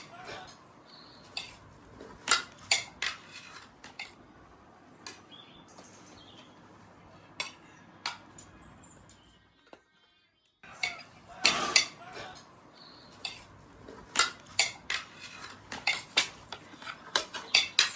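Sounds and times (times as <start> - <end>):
cutlery and dishes clinking: 0.0 - 4.2, 7.4 - 9.3, 10.7 - 17.9.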